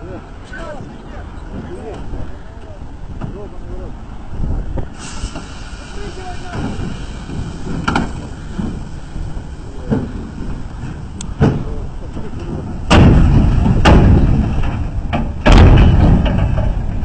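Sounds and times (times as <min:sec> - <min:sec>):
heavy truck rumbling: 0:00.0 - 0:17.0
knocks and thuds: 0:09.9 - 0:11.8, 0:12.4 - 0:17.0.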